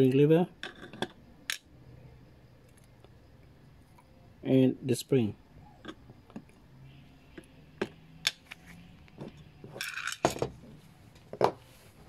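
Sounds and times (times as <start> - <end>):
small metal parts clinking: 9.6 - 10.5.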